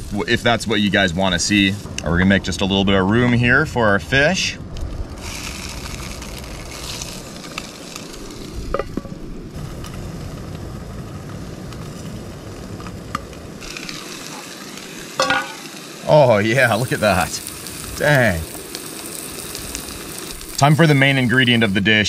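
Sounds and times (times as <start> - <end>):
food sizzling in a pan: 5.2 - 22.0.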